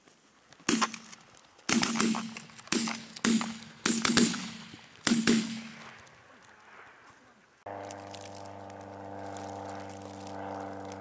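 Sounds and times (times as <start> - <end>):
shotgun blasts: 0.7 - 6.0.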